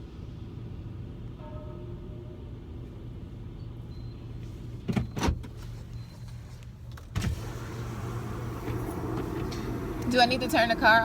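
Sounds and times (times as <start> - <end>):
car engine idling: 7.4 - 11.0.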